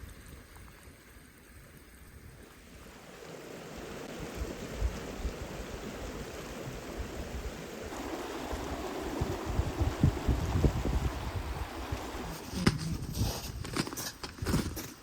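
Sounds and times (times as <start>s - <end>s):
river water flowing: 0.0s - 13.0s
wind rumble on microphone: 3.6s - 14.8s.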